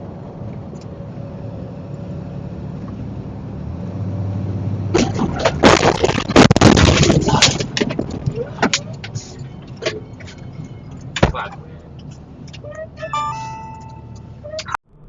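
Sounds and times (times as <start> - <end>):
road vehicle running: 0.0 - 15.0
loud bangs and crunching impacts: 4.7 - 11.6.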